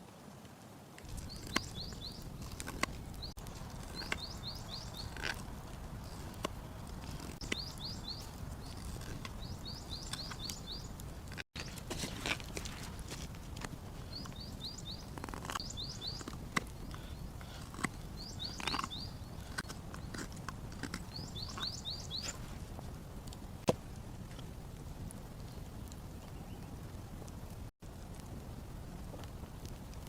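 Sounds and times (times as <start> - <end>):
small bird chirping: 1.1 - 5.4, 6.0 - 11.8, 14.0 - 22.5.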